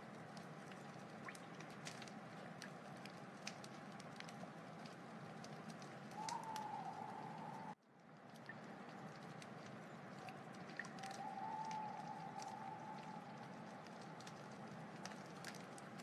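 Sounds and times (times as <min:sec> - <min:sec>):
wood fire crackling and popping: 0:00.0 - 0:16.0
whistling hiss: 0:06.1 - 0:07.8, 0:11.0 - 0:13.5.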